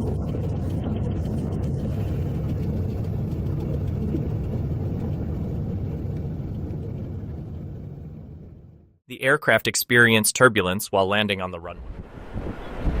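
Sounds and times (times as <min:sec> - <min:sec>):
jet engine rumble: 0:00.0 - 0:09.0.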